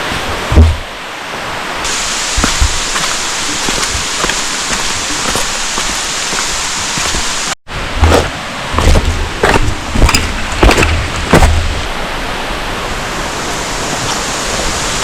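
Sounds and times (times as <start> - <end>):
falling water hiss: 0.0 - 15.0
low thumps: 0.5 - 1.0, 2.3 - 7.4.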